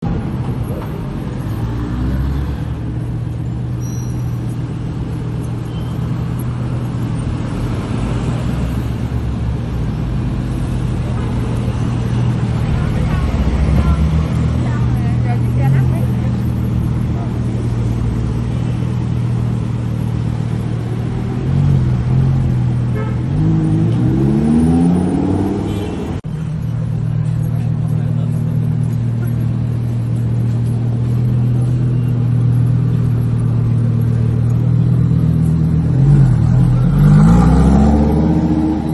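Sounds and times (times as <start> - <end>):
sports car engine revving: 16.8 - 25.8, 28.4 - 38.9.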